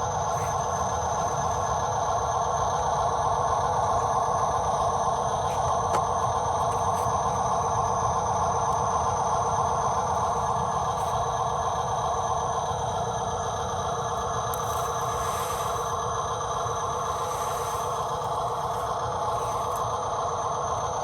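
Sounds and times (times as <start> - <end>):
small electric motors and gearing: 0.0 - 2.9, 13.2 - 21.0.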